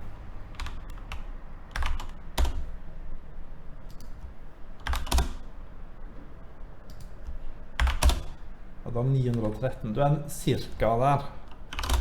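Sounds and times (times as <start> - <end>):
computer keyboard keystrokes: 0.5 - 2.7, 3.9 - 5.5, 6.8 - 8.4, 9.2 - 9.6, 11.5 - 12.0.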